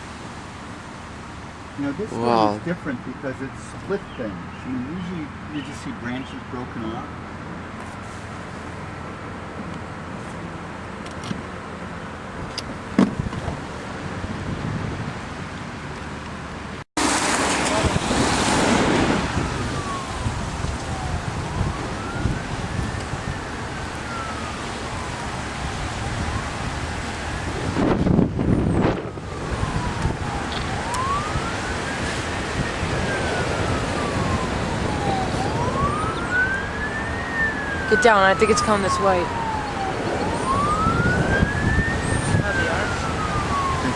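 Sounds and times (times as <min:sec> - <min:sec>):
car and road noise: 0:00.0 - 0:43.9
low gusts or rumbles: 0:12.2 - 0:43.9
emergency siren wailing: 0:17.1 - 0:43.9.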